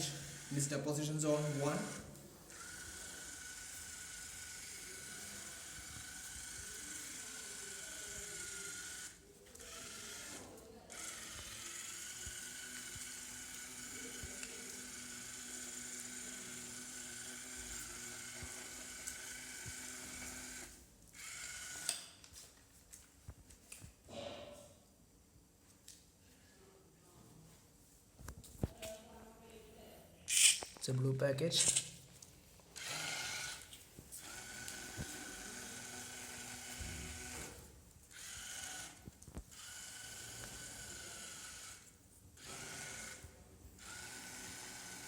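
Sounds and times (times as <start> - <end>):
electric motors whining: 0.0 - 22.0, 32.8 - 45.0.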